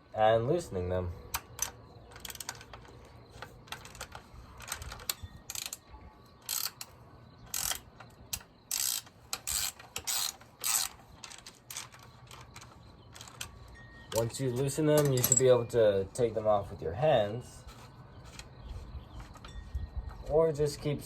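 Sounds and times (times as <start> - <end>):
wrench metallic clicking: 6.4 - 6.9, 7.5 - 13.5.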